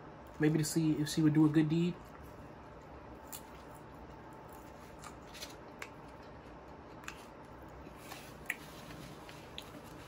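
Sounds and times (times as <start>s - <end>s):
person chewing food: 2.1s - 10.0s
mouth clicks and smacks: 5.8s - 7.4s.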